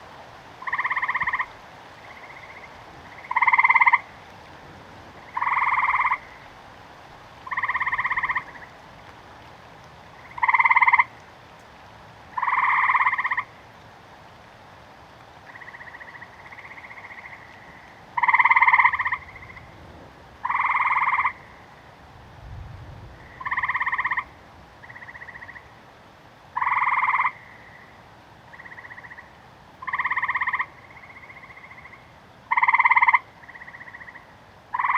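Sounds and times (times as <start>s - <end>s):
steady hiss of rain: 0.0s - 34.9s
frog croaking loudly: 0.6s - 4.1s, 5.3s - 6.5s, 7.4s - 8.7s, 10.2s - 11.1s, 12.4s - 13.5s, 15.5s - 19.7s, 20.4s - 21.7s, 23.2s - 25.7s, 26.6s - 34.9s
faint frog calling: 0.6s - 4.3s, 5.2s - 6.6s, 7.4s - 8.8s, 10.0s - 11.2s, 12.3s - 13.7s, 15.4s - 19.8s, 20.4s - 22.0s, 23.2s - 34.9s.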